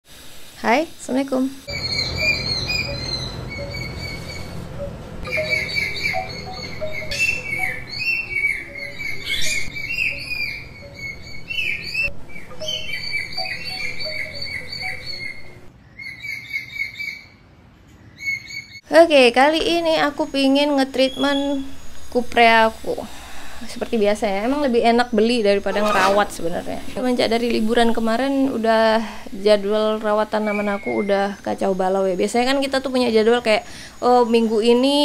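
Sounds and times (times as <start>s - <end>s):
birds chirping: 1.7s - 18.8s, 19.6s - 35.0s
soft background music: 4.8s - 15.7s.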